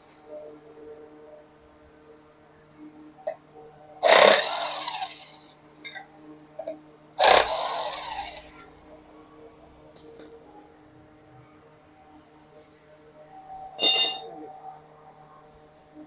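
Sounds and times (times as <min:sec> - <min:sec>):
power tool bursts: 0:04.0 - 0:05.4, 0:07.2 - 0:08.6.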